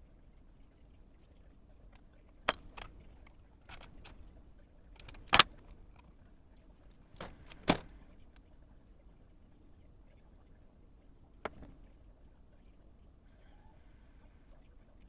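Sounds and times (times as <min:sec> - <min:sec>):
sharp metallic clicks: 0:05.0 - 0:05.6.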